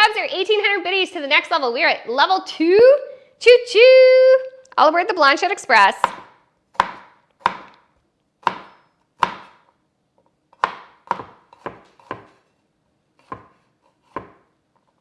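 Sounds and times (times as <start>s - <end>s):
knife chopping on cutting board: 6.0s - 7.8s, 8.4s - 9.7s, 10.6s - 12.6s, 13.2s - 14.5s.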